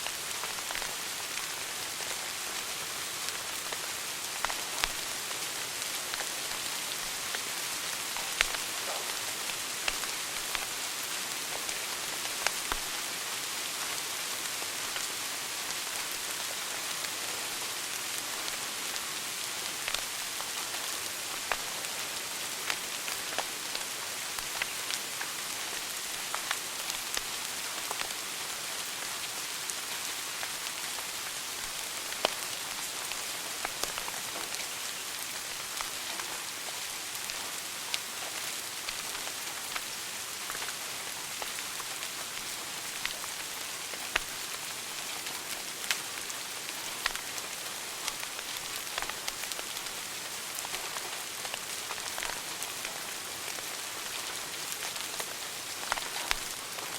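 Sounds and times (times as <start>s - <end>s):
wood fire crackling: 0.2s - 10.7s, 22.6s - 28.7s, 29.7s - 56.9s.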